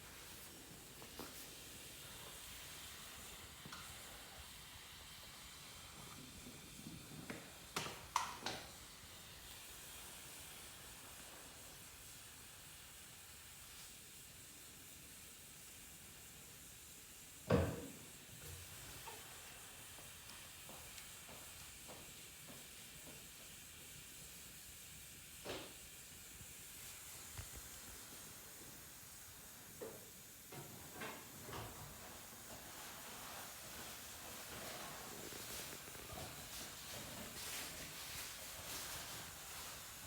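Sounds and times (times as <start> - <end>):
faint steady hiss: 0.0 - 40.0.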